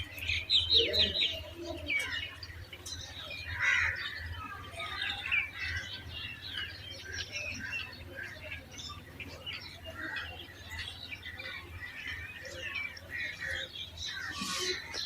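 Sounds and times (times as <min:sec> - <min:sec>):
young pigeons chirping: 0:00.0 - 0:15.0.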